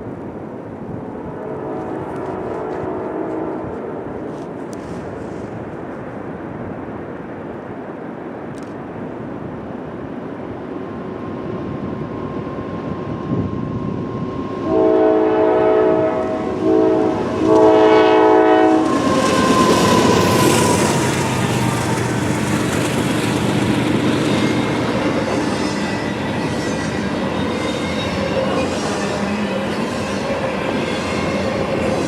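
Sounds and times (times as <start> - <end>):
diesel freight train rumbling: 0.0 - 8.2, 8.9 - 32.0
train rolling rush: 0.0 - 32.0
locomotive air horn blasts: 1.4 - 3.7, 14.7 - 20.3.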